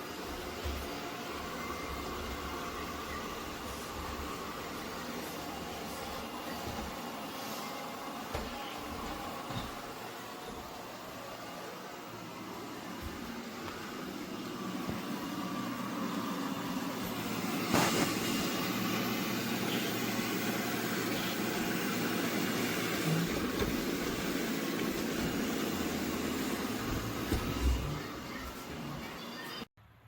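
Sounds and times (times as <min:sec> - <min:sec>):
robot vacuum whirring: 0:12.0 - 0:29.7.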